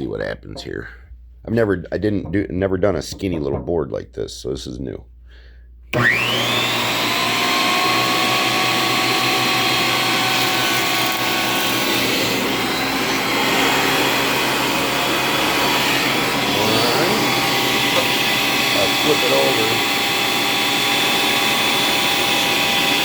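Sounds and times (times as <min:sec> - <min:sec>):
thickness planer whining: 0:05.9 - 0:23.0.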